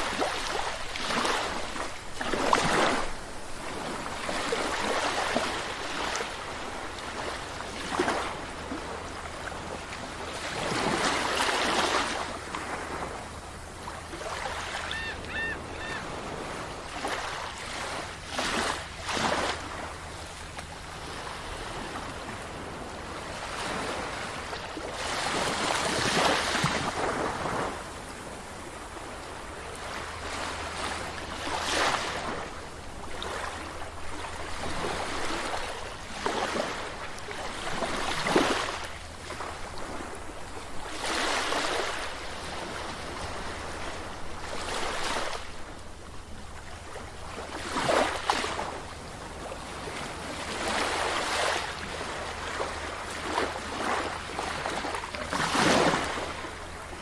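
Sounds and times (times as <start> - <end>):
waves breaking on a beach: 0.0 - 57.0.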